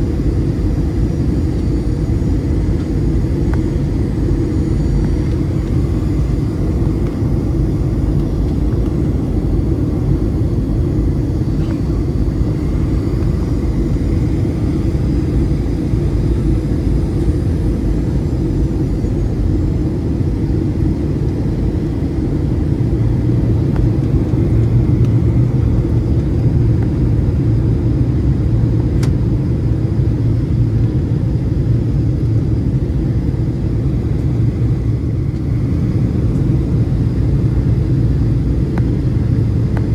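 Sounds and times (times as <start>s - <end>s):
faint high whine: 0.0s - 28.5s
jet engines idling rumble: 0.0s - 39.9s.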